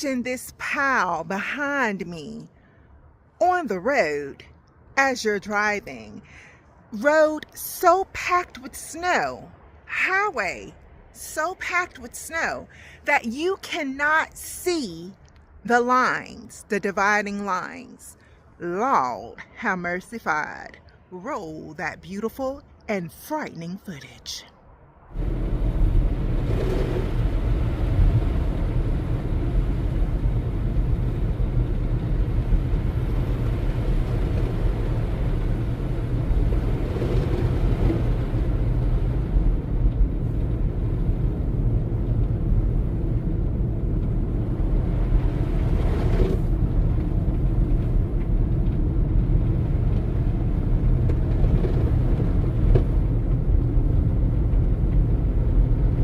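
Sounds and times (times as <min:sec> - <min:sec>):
car engine and tyre rumble: 0:05.7 - 0:14.3, 0:24.0 - 0:56.0.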